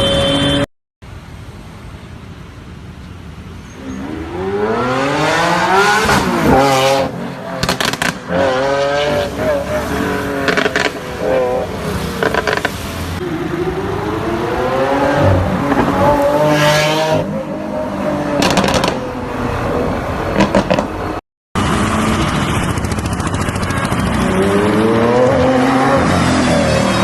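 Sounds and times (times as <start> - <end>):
supercar engines revving: 3.7 - 27.0.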